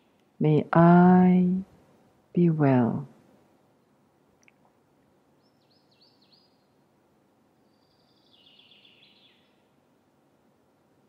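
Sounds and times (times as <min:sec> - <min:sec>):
faint bird calls: 0:07.6 - 0:09.7.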